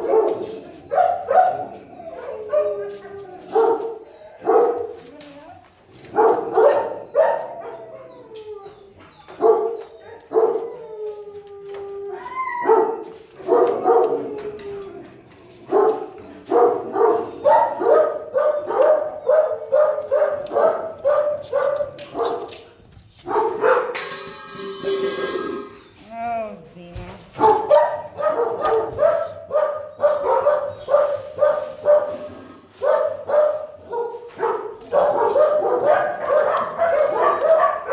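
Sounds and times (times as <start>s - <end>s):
dogs howling: 0.0s - 4.8s, 6.4s - 22.2s
dogs barking: 0.0s - 5.1s, 5.9s - 10.8s, 12.6s - 24.0s, 27.3s - 37.9s.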